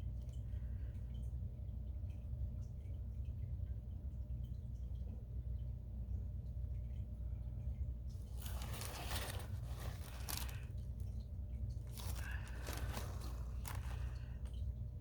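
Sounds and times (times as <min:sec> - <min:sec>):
rustling handling noise: 0:08.1 - 0:14.7.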